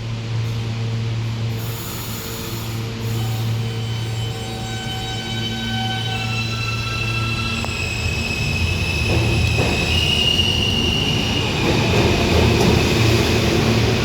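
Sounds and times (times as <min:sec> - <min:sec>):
wheels rumbling on rail: 0:00.0 - 0:14.0.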